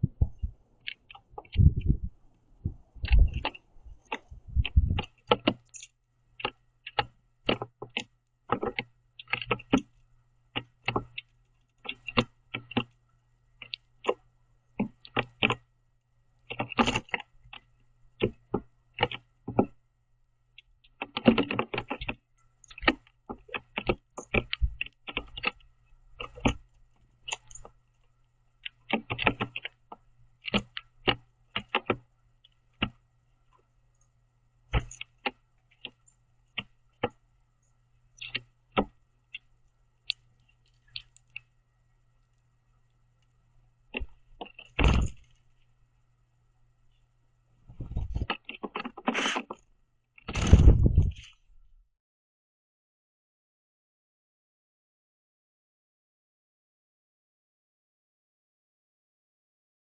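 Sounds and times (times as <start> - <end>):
bird pecking at seeds: 0.8 - 2.3, 3.0 - 13.0, 13.6 - 15.7, 16.4 - 19.8, 20.6 - 45.7, 47.9 - 49.6.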